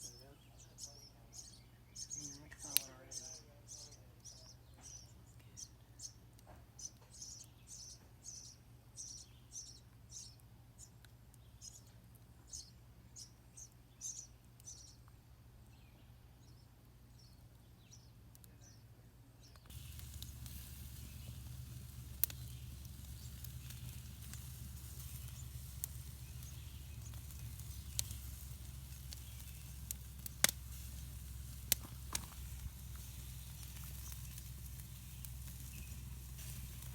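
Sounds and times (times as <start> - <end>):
bird chirping: 0.0 - 15.1, 19.4 - 36.9
campfire hissing and crackling: 19.7 - 36.9.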